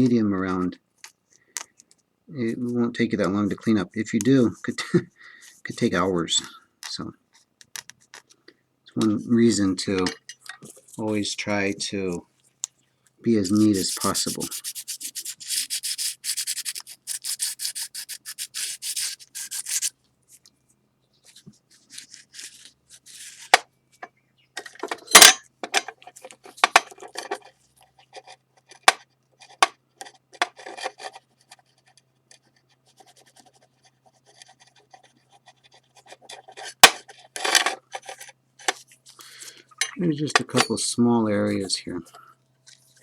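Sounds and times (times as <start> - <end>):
sandpaper rubbing on ceramic: 13.5 - 19.9.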